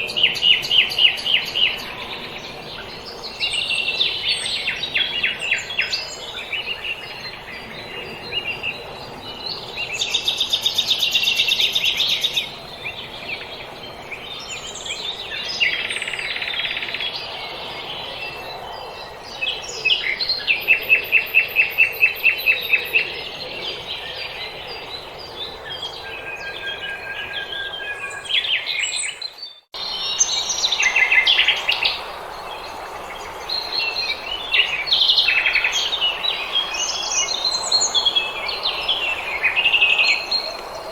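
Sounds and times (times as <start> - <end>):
songbirds chirping and trilling: 0.0 - 40.9
steady background hiss: 29.8 - 40.9.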